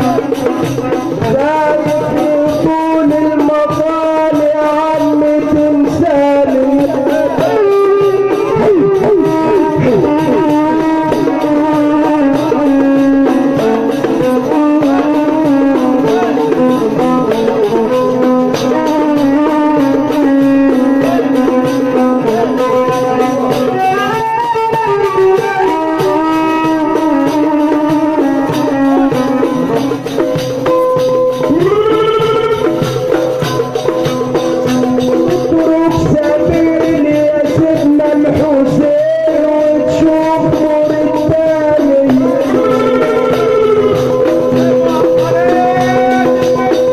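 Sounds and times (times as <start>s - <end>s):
hand percussion beat: 0.0s - 46.9s
melodic instruments playing: 41.3s - 46.1s.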